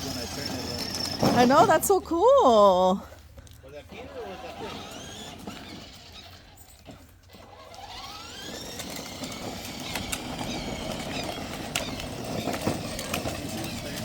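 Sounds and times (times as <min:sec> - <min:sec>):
electric motors whining: 0:04.0 - 0:14.0.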